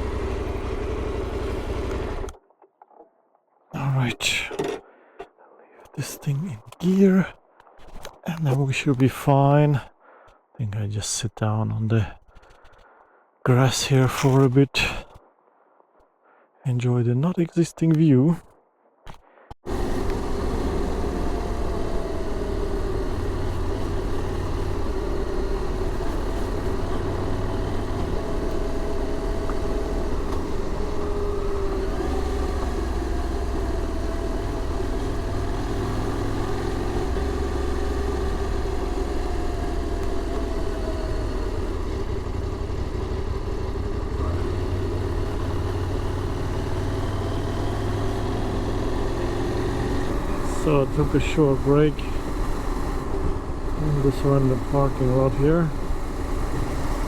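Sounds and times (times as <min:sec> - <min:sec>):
vehicle engine rumbling: 0:00.0 - 0:02.4, 0:19.1 - 0:57.0.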